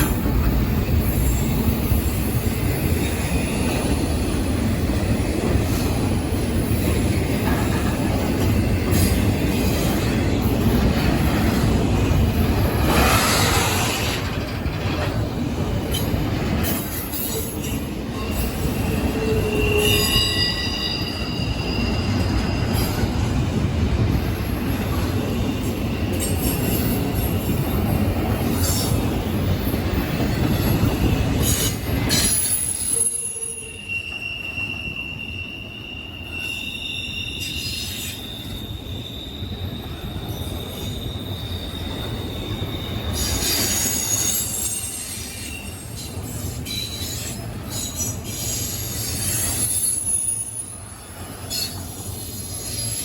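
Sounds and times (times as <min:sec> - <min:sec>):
train wheels rumbling on rails: 0:00.0 - 0:53.0
high wheel squeals: 0:16.8 - 0:23.3, 0:30.5 - 0:53.0.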